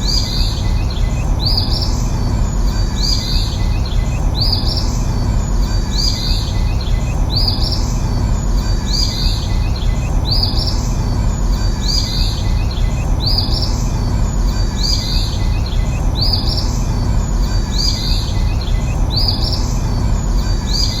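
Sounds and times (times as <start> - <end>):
steady background noise: 0.0 - 21.0.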